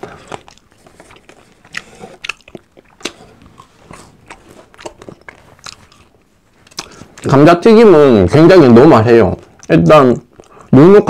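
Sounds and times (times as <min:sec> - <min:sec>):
man crunching french fries: 0:00.0 - 0:07.3.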